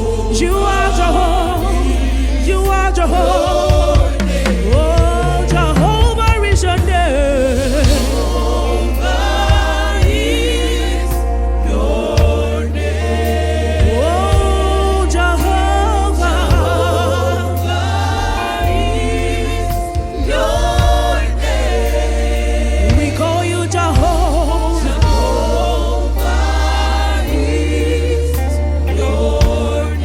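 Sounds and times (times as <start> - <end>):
gospel choir singing: 0.0 - 30.0
instrumental backing with heavy bass: 0.0 - 30.0.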